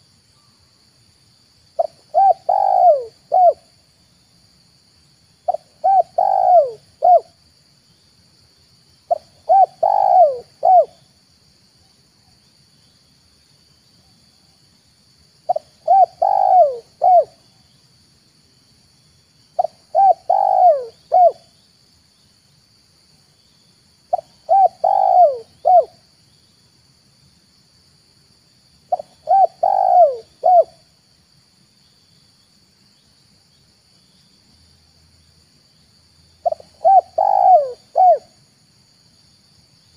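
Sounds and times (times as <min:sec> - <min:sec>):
dove cooing: 0:01.8 - 0:03.6, 0:05.5 - 0:07.3, 0:09.1 - 0:11.0, 0:15.5 - 0:17.4, 0:19.6 - 0:21.4, 0:24.1 - 0:26.0, 0:28.9 - 0:30.8, 0:36.4 - 0:38.4.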